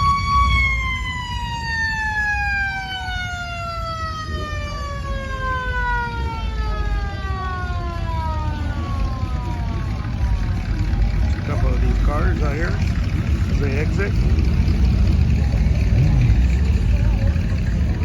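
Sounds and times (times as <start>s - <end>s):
siren winding down: 0.0s - 11.0s.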